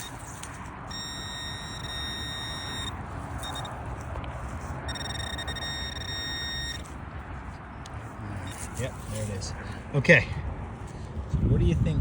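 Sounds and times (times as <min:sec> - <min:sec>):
metal detector tone: 0:00.0 - 0:00.3, 0:00.9 - 0:03.8, 0:04.9 - 0:06.9.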